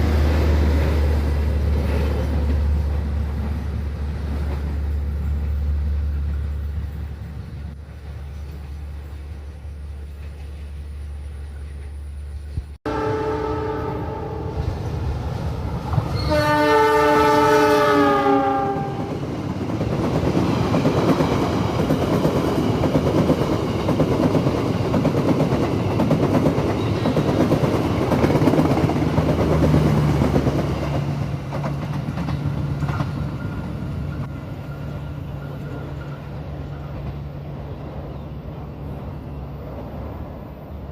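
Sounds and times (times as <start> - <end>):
train horn blasts: 12.8 - 14.8, 16.1 - 19.2
train wheels rattling over rail joints: 19.1 - 37.9.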